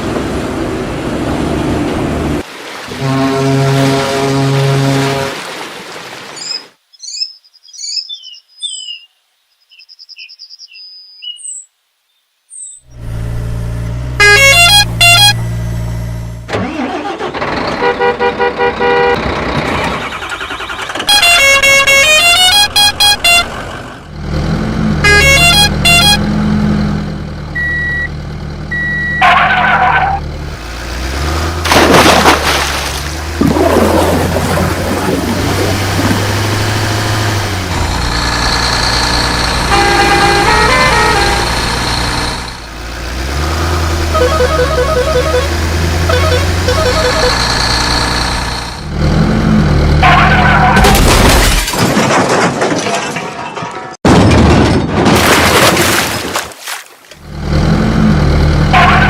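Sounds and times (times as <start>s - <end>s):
horn honks: 2.9s - 5.5s, 12.9s - 19.2s, 20.8s - 23.6s, 24.9s - 26.5s, 28.7s - 30.2s, 39.2s - 48.9s, 49.9s - 50.9s, 58.6s - 59.0s
tune-like beeps: 44.1s - 47.7s.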